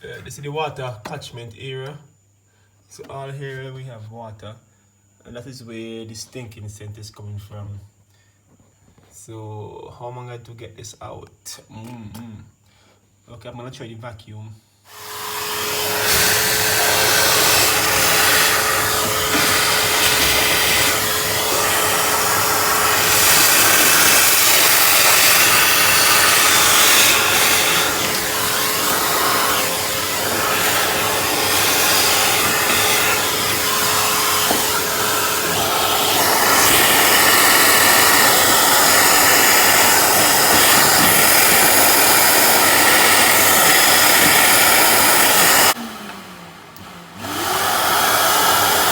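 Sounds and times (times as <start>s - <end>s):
vacuum cleaner sucking water: 14.9s - 48.9s.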